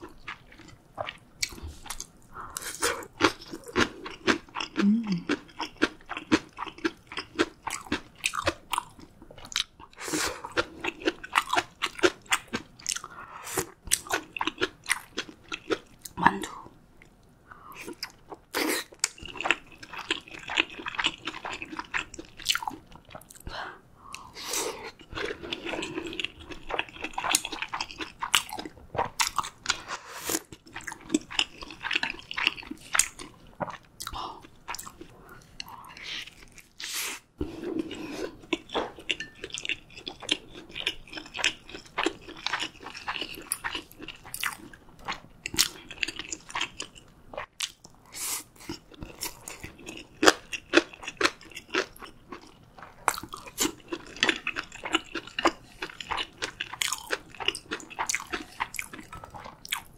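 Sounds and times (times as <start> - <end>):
chewing with wet mouth clicks: 38.5 - 48.0.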